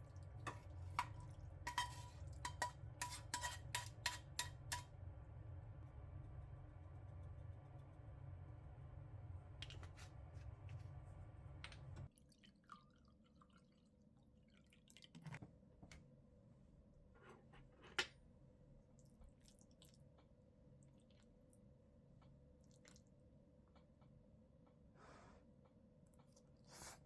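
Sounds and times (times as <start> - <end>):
low hum: 4.9 - 12.1.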